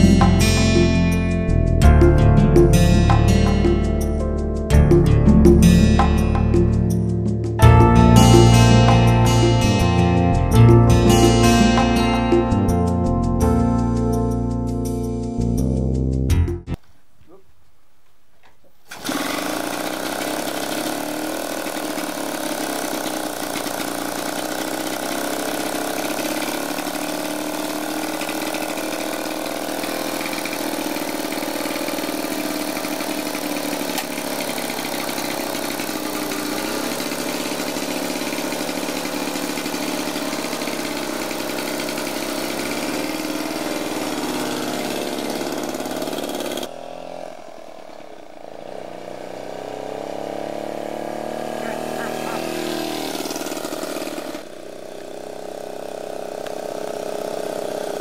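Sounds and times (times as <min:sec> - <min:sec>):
two-stroke motorcycle engine running: 0:00.0 - 0:13.0, 0:18.9 - 0:58.0.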